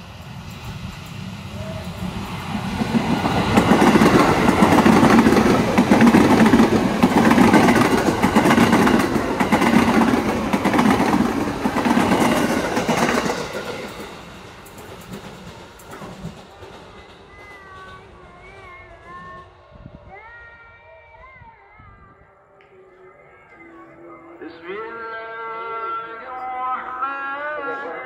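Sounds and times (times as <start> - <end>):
train wheels on rails: 0.0 - 20.6.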